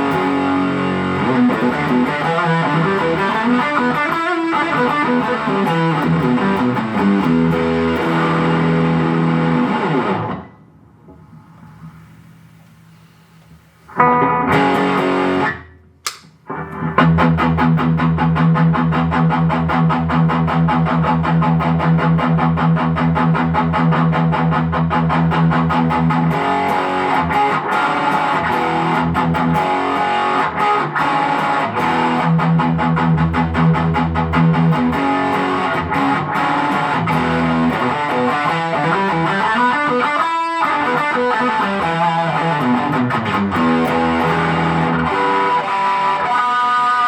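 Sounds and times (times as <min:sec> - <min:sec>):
amp hum: 0:00.0 - 0:03.6, 0:05.2 - 0:17.4
distorted electric guitar riff: 0:00.0 - 0:12.6, 0:13.9 - 0:47.0.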